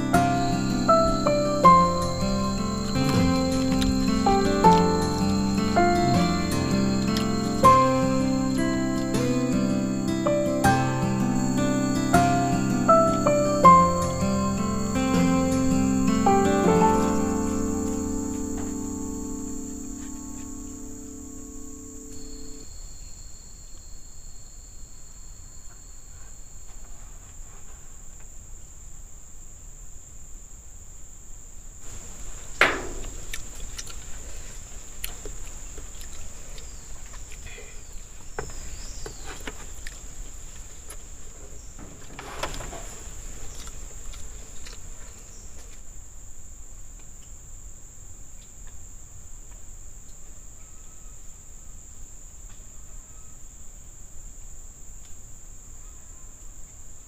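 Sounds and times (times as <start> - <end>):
insect chorus: 0.0 - 57.0
sharp knock: 32.6 - 33.4.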